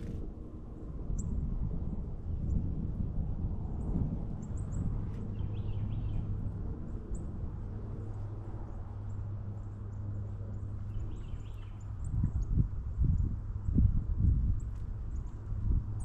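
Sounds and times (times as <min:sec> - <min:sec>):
steady low rumble: 0:00.0 - 0:16.0
small birds chirping: 0:10.8 - 0:12.5.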